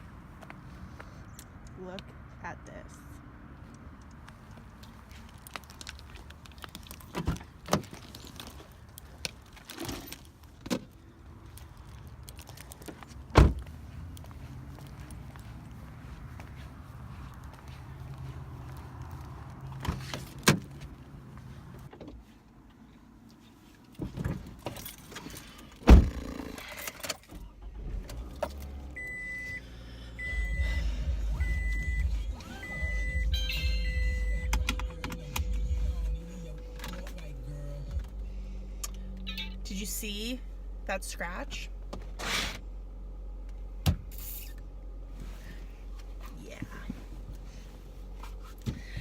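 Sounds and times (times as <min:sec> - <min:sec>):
car door shutting: 0:13.3 - 0:13.7, 0:25.8 - 0:29.5
car warning chime beeping: 0:29.0 - 0:36.8, 0:39.1 - 0:40.2.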